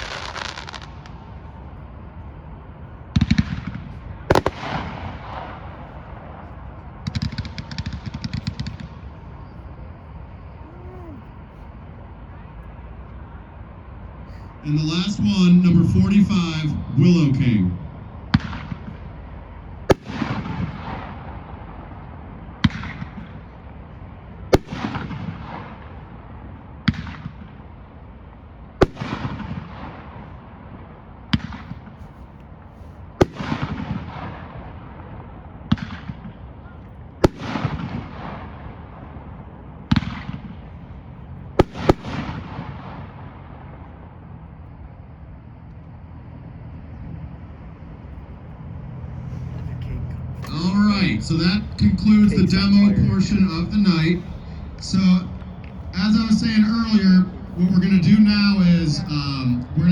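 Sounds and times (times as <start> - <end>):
firework bangs with crackling hiss: 0.0 - 1.6, 3.1 - 6.4, 7.0 - 9.2, 18.3 - 19.0, 19.9 - 21.4, 22.6 - 23.4, 24.5 - 26.0, 26.8 - 27.6, 28.8 - 30.3, 31.3 - 32.2, 33.2 - 34.7, 35.7 - 36.4, 37.2 - 38.8, 39.9 - 40.8, 41.6 - 43.9.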